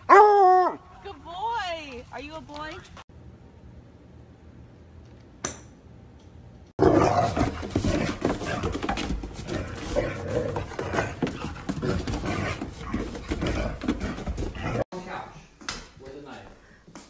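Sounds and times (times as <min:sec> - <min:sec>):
dog growling: 0:06.8 - 0:08.8, 0:09.4 - 0:14.8.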